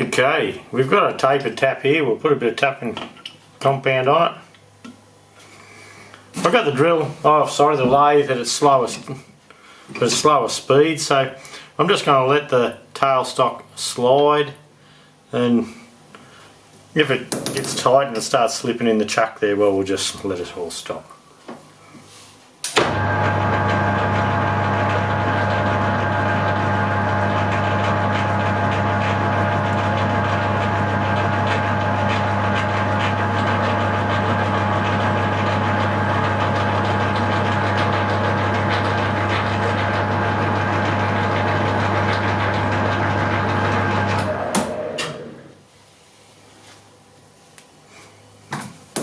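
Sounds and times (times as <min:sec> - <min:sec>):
lathe motor humming: 0:22.8 - 0:45.5.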